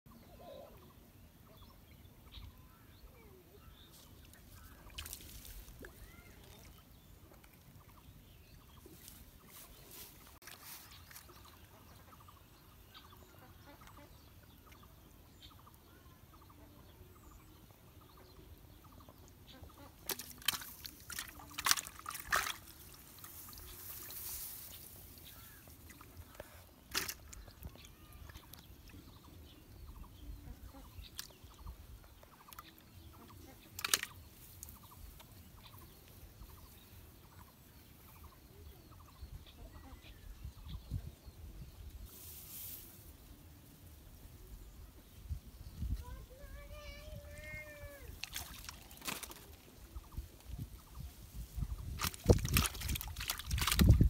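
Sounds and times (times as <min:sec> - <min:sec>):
faint bird calls: 0:00.1 - 0:06.9, 0:23.2 - 0:43.4.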